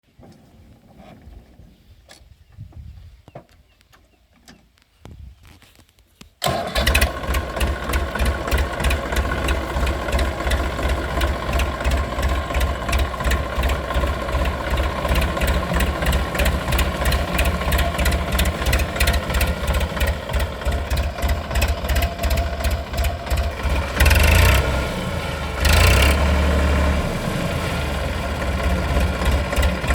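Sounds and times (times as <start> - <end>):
tractor diesel engine running: 6.4 - 29.9.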